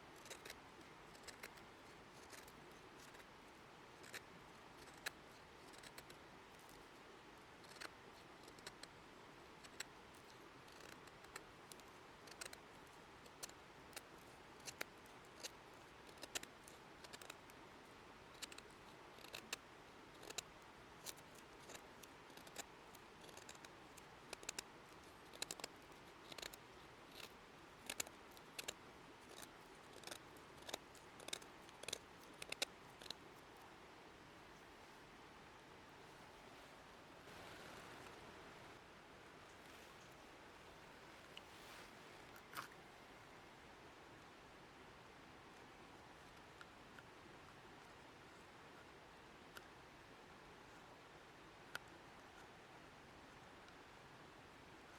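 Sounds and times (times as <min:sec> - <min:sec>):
faint steady hiss: 0:00.0 - 0:54.9
sharp clicks and snaps: 0:25.3 - 0:33.2.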